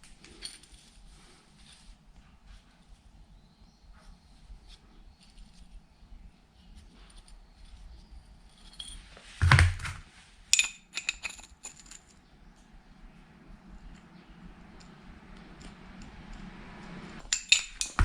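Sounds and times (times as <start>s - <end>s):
light metallic clinks: 7.0s - 9.3s, 10.5s - 18.0s
heavy thump: 9.3s - 10.1s.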